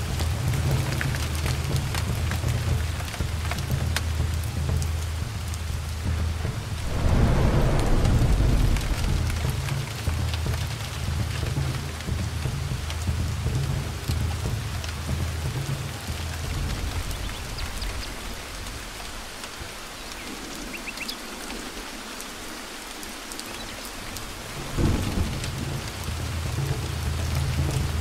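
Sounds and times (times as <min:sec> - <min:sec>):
heavy rain on leaves: 0:00.0 - 0:28.0
rumble of thunder: 0:05.8 - 0:14.4, 0:16.2 - 0:19.3, 0:24.5 - 0:28.0
crack of thunder: 0:06.7 - 0:10.7, 0:24.6 - 0:25.7.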